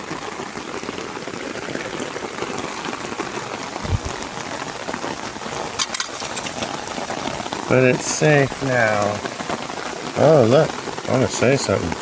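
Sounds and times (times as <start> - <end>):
heavy rain hitting surfaces: 0.0 - 12.0
dull thump: 3.8 - 4.2.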